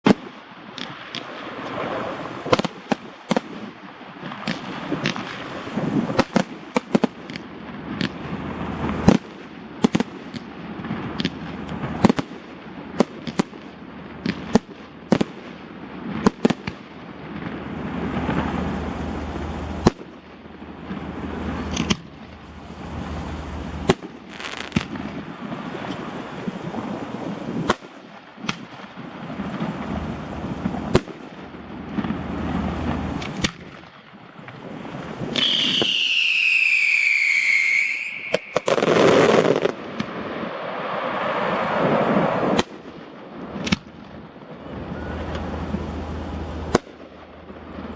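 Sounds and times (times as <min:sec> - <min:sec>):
fireworks bangs: 0:00.0 - 0:47.9
low rumble of booms: 0:29.3 - 0:33.7.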